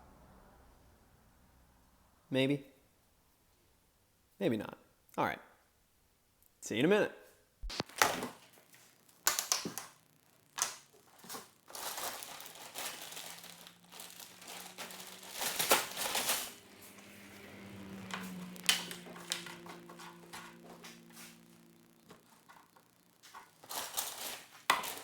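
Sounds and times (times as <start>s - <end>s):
faint low hum: 7.5s - 25.0s
crinkling: 7.6s - 25.0s
plastic pieces rattling: 10.6s - 16.6s, 23.2s - 25.0s.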